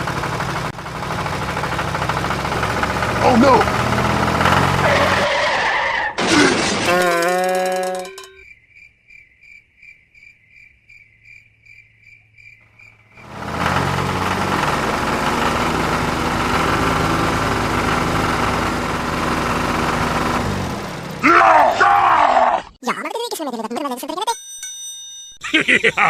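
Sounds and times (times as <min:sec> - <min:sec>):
vehicle engine running: 0:00.0 - 0:05.2, 0:12.6 - 0:22.2.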